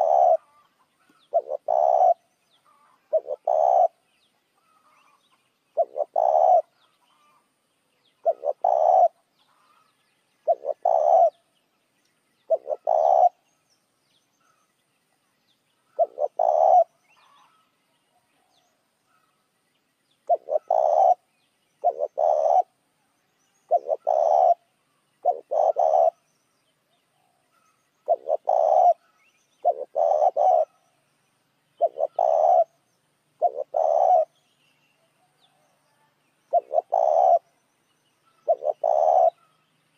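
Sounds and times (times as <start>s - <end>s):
dove cooing: 0.0s - 4.0s, 4.6s - 7.4s, 8.2s - 9.8s, 10.4s - 11.5s, 12.5s - 13.4s, 15.9s - 17.6s, 20.2s - 22.8s, 23.7s - 26.2s, 28.0s - 30.8s, 31.8s - 32.8s, 33.4s - 34.4s, 36.5s - 37.5s, 38.3s - 39.5s.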